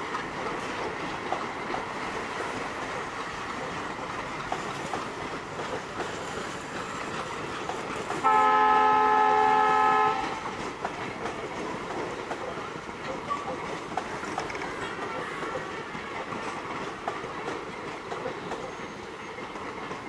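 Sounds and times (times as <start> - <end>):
train wheels clacking on rail joints: 0.0 - 20.0
locomotive horn blast: 8.2 - 10.4.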